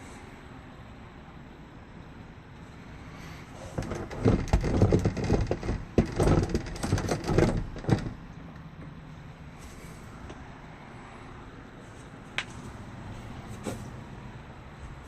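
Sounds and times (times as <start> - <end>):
knocks clatters and rattles: 3.6 - 8.2.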